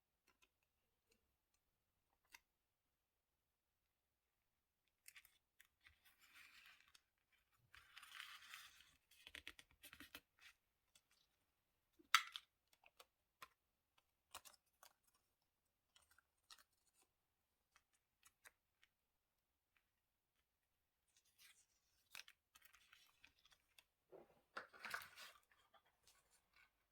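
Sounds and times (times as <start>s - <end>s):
paper rustling: 21.3s - 26.8s.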